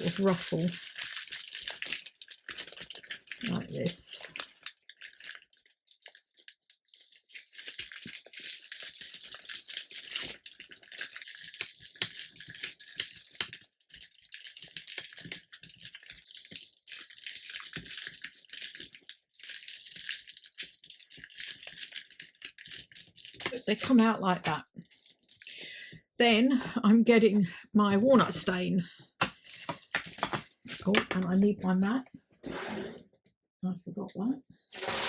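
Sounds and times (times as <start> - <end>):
parchment paper crinkling: 0.0 - 25.6, 29.3 - 31.8, 34.8 - 35.0.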